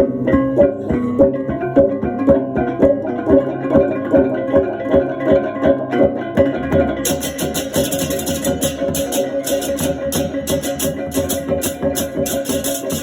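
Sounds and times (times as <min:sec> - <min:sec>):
gamelan gong-chimes ringing: 0:07.1 - 0:13.0.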